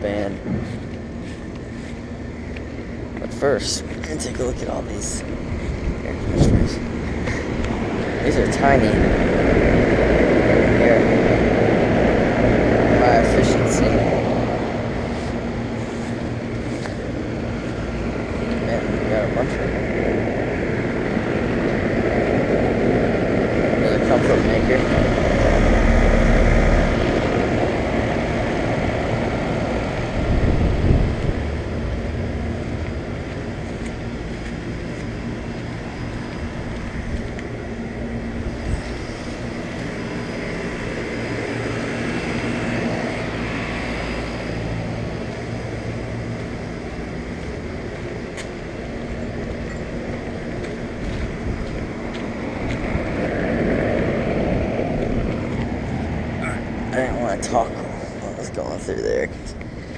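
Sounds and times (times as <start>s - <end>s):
air conditioner units running: 0.0s - 59.9s.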